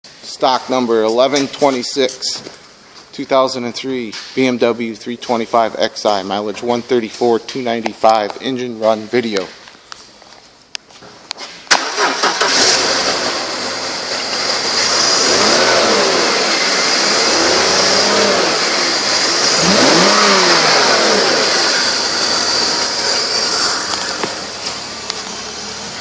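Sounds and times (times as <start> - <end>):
car engine cranking and starting: 11.7 - 26.0
car engine revving: 11.7 - 26.0.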